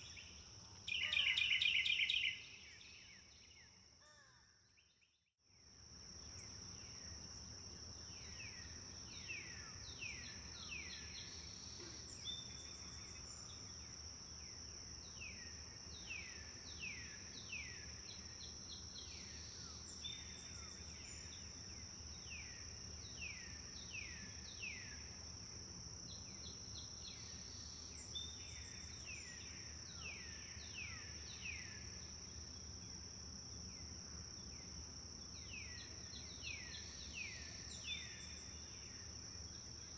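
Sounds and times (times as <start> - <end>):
songbird singing whistled notes: 0.0 - 3.6.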